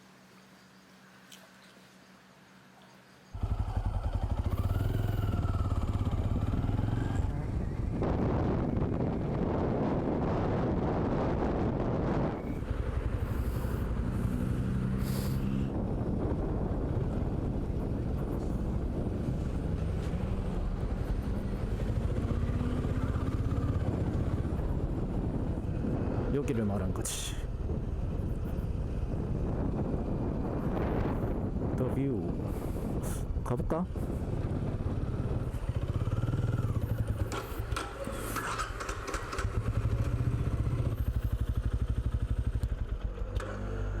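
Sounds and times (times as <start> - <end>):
motorcycle engine running: 3.4 - 26.3, 27.5 - 44.0
wind rush: 5.5 - 37.8.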